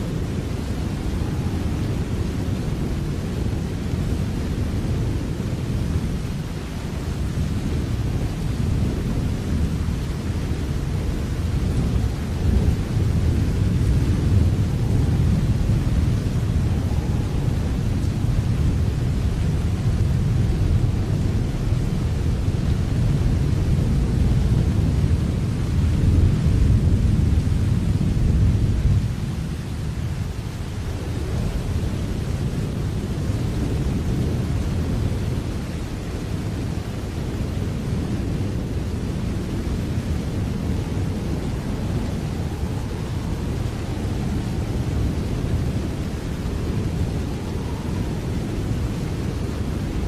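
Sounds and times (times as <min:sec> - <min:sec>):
steady rainfall: 0:00.0 - 0:50.0.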